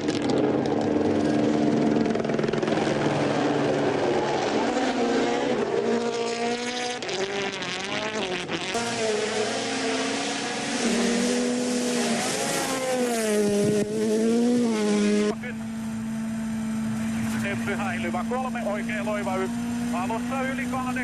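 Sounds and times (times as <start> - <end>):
rally car engine with gear changes: 0.0 - 21.0.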